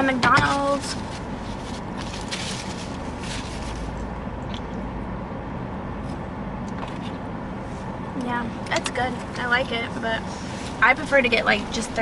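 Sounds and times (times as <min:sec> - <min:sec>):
car cabin rumble: 0:00.0 - 0:12.0
paper rustling: 0:00.4 - 0:04.0.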